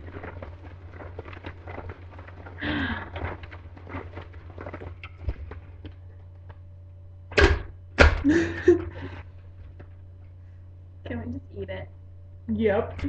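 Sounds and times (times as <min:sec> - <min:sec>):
loud thuds: 0:07.3 - 0:08.8.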